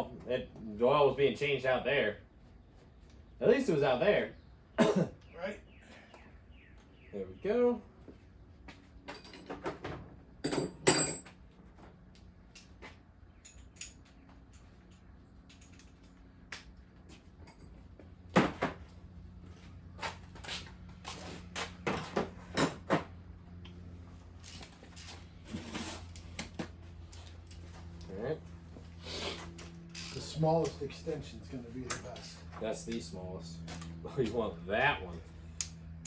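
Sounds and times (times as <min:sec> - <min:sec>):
metal tools clanking: 0:10.4 - 0:11.3, 0:29.2 - 0:34.5
metal tools knocking and clinking: 0:10.4 - 0:11.3, 0:31.9 - 0:32.3.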